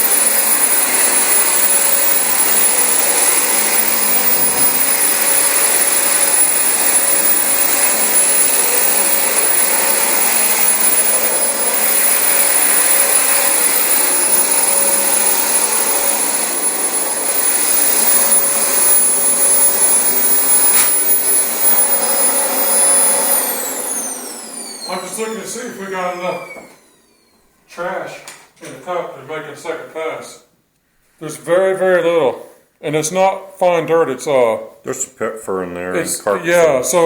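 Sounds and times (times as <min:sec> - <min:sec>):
vacuum cleaner running on carpet: 0:00.0 - 0:25.4.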